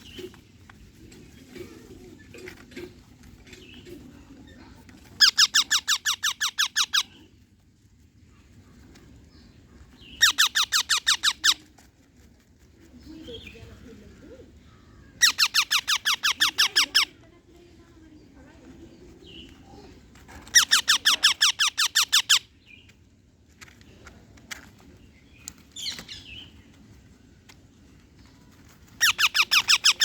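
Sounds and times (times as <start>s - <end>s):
parrot screeching: 10.2s - 11.6s.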